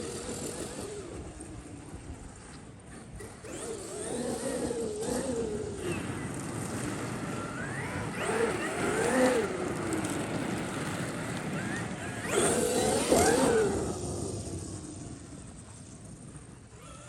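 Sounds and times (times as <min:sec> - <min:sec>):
electric motor whining: 0:03.0 - 0:15.8, 0:16.6 - 0:17.0.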